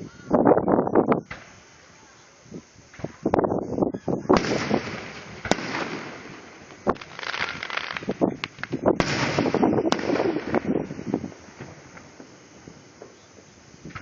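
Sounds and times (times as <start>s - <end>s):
fireworks crackling: 0.0s - 14.0s
loud firework bangs: 4.1s - 14.0s.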